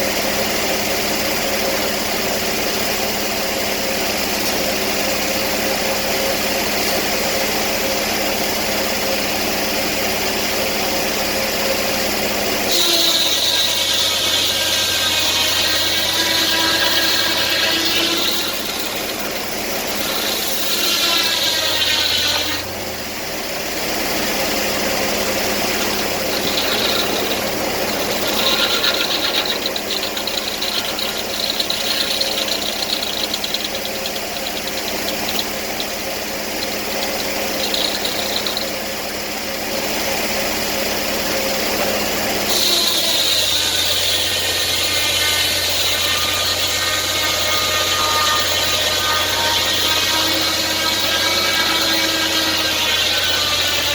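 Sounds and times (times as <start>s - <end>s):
sawmill engine running: 0.0s - 53.9s
high-pitched saw whine: 10.4s - 53.9s
fast ticking: 12.7s - 22.8s, 24.9s - 39.3s, 42.5s - 53.9s.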